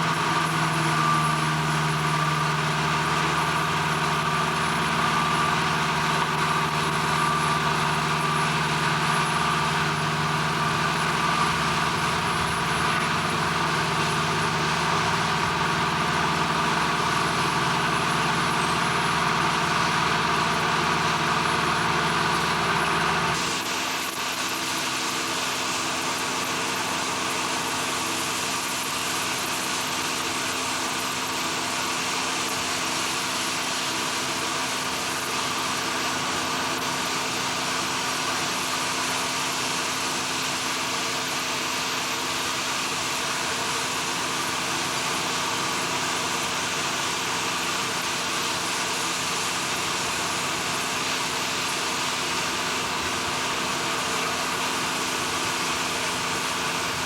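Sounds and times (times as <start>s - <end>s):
machinery drone: 0.0s - 24.8s.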